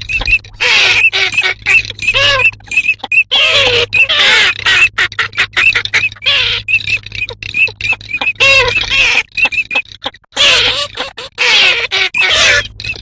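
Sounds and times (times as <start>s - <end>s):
ducks calling: 0.0s - 13.0s
steady low hum: 0.0s - 13.0s.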